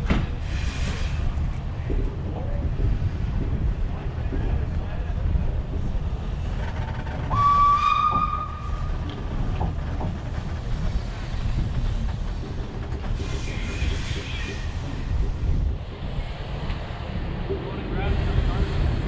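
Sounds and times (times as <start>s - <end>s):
steam locomotive whistle: 7.3s - 8.9s.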